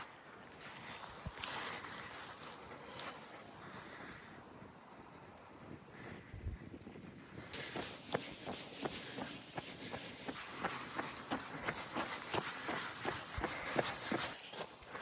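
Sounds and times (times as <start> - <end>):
running footsteps on path: 7.5 - 15.0
steady rubbing hiss: 7.6 - 14.4.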